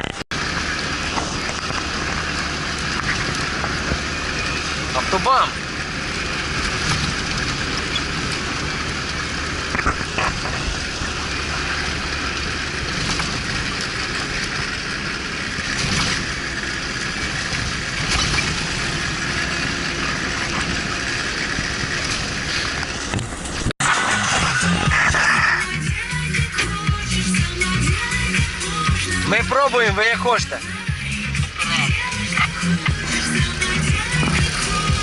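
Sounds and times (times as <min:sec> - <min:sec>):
off-road vehicle engine driving: 0:00.0 - 0:35.0.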